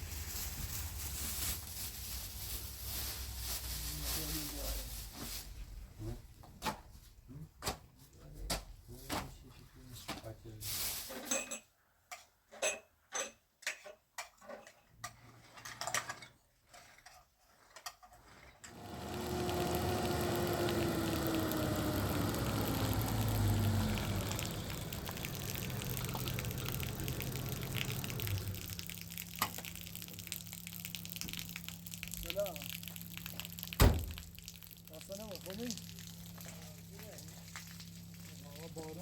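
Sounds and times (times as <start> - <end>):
water running: 18.7 - 39.0.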